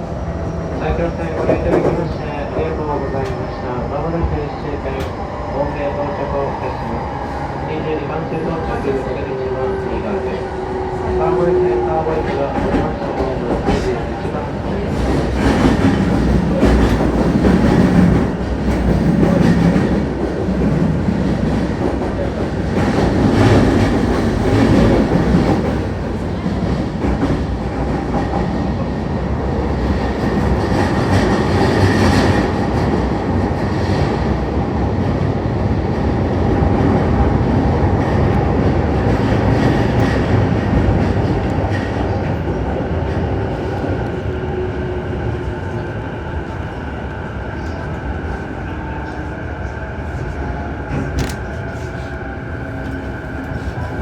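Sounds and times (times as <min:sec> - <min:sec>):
train running noise inside car: 0:08.7 - 0:29.1.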